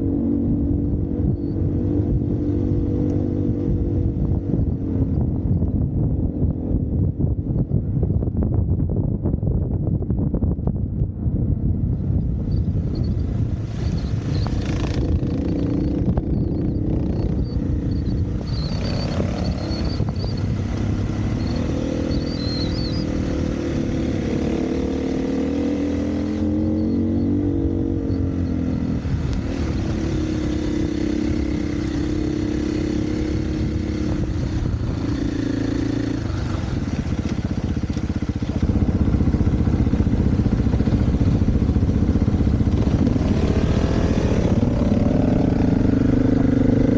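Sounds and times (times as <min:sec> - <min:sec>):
wind rush: 0:00.0 - 0:46.9
dirt bike engine revving: 0:13.8 - 0:46.9.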